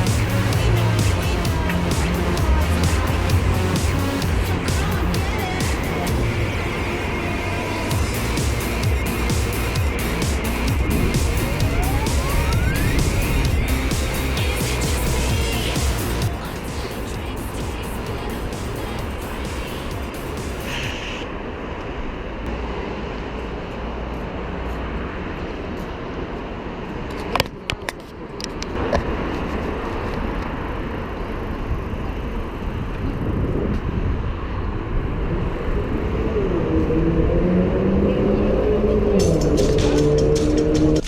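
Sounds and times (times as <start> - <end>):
sliding multi-tone pitched sound: 0.0 - 21.1
road and traffic noise: 0.0 - 41.0.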